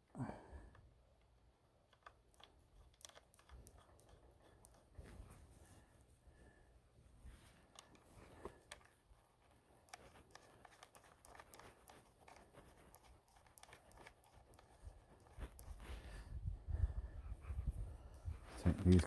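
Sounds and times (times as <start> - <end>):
small parts clicking and tapping: 0.7 - 5.1, 7.7 - 15.8.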